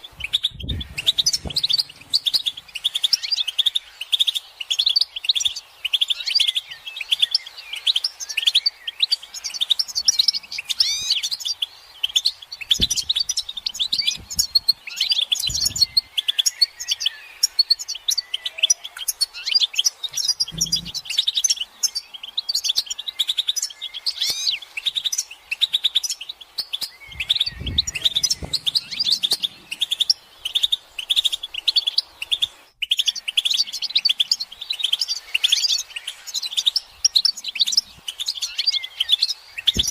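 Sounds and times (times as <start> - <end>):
finches twittering: 0.0 - 39.9
low thumps: 0.5 - 2.5, 12.8 - 13.3, 27.1 - 29.7.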